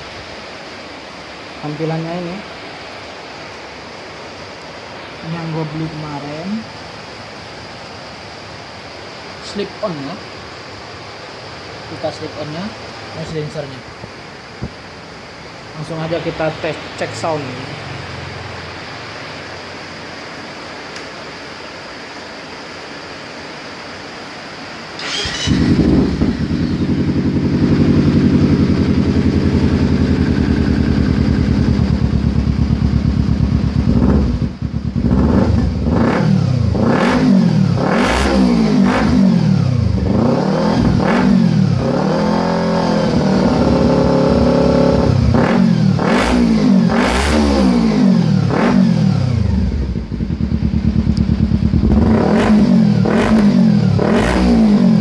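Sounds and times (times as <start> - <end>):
motorcycle engine idling: 25.0 - 36.8, 43.0 - 45.4, 49.3 - 52.2
motorcycle engine revving: 25.0 - 55.0
motorcycle engine starting: 25.0 - 55.0.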